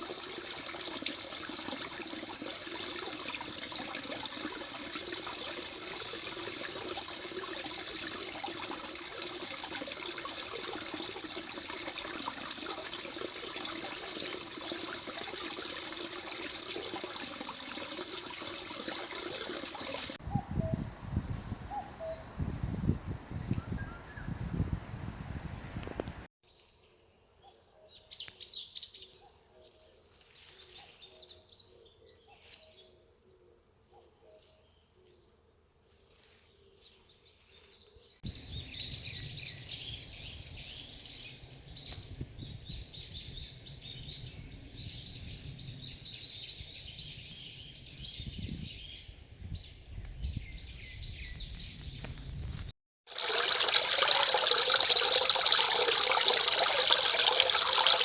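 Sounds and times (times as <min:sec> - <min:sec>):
flowing water rushing: 0:00.0 - 0:20.2, 0:53.1 - 0:58.0.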